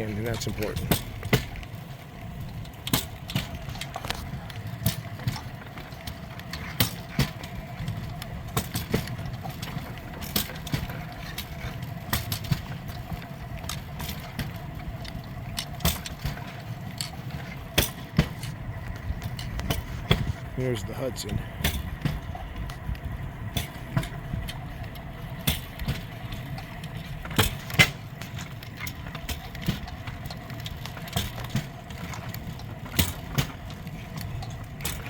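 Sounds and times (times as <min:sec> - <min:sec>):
faint hum from wheels: 0:00.0 - 0:35.0
rail bike rolling on rails: 0:00.0 - 0:35.0
clicks and rattles: 0:02.5 - 0:20.5.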